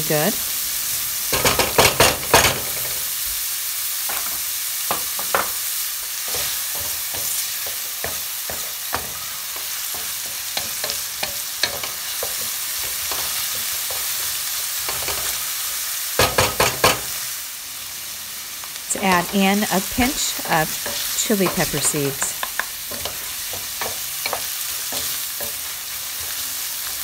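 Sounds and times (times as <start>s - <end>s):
food sizzling in a skillet: 0.0s - 27.0s
wooden spoon scraping a pan: 18.9s - 27.0s.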